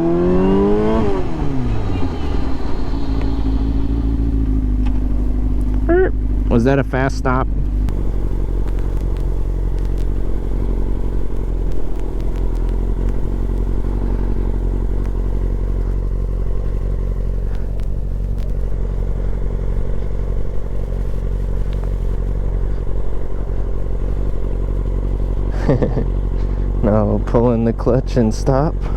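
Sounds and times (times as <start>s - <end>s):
motorcycle engine running: 0.0s - 28.9s
faint clicks: 8.6s - 19.4s, 20.6s - 22.8s.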